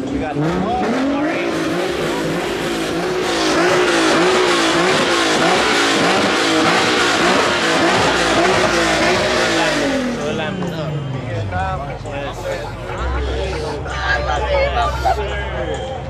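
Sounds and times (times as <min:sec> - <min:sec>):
car engine revving hard: 0:00.0 - 0:13.9
raspy exhaust noise: 0:01.0 - 0:11.0, 0:12.0 - 0:14.1, 0:14.7 - 0:15.3.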